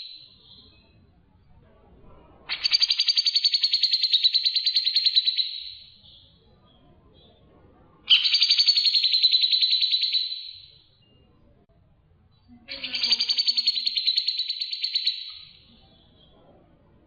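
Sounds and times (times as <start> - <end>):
songbird trilling: 2.5 - 5.9, 8.1 - 10.7, 12.7 - 15.6.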